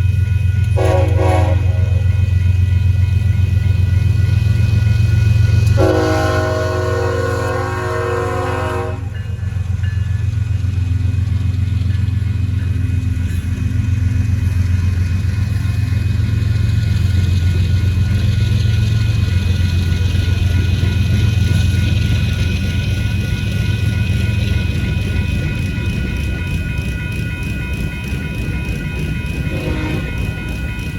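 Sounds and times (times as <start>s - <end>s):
diesel locomotives rumbling: 0.0s - 30.9s
wheel and rail noise: 0.0s - 30.9s
locomotive air horn chord: 0.7s - 2.2s, 5.6s - 9.4s, 29.5s - 30.2s.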